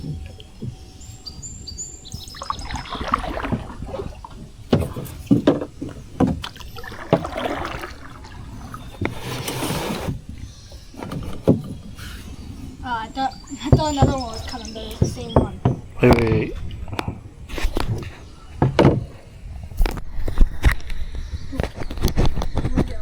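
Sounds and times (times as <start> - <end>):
water sloshing against hull: 0.0 - 23.0
knocks on boat: 2.4 - 9.2, 13.6 - 19.2.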